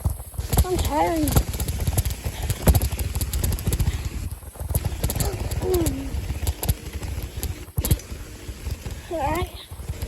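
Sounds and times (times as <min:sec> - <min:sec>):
bicycle knocking and rattling: 0:00.0 - 0:10.0.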